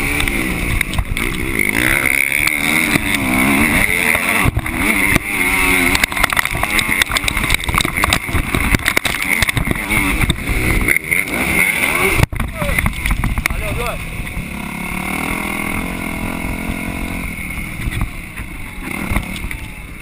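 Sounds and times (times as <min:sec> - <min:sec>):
motocross bike engine revving: 0:00.0 - 0:20.0
sharp knocks from bumps: 0:05.9 - 0:10.4.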